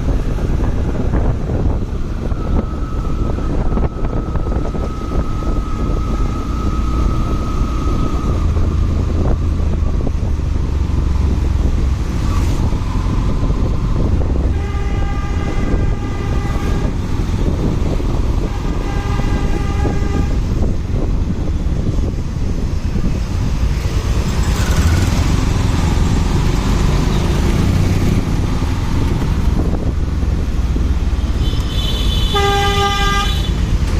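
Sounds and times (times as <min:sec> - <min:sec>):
motorcycle engine rumble: 0:00.0 - 0:33.9
wind noise: 0:00.0 - 0:33.9
vehicle horn blasts: 0:14.5 - 0:17.0, 0:18.7 - 0:20.5, 0:31.4 - 0:33.6.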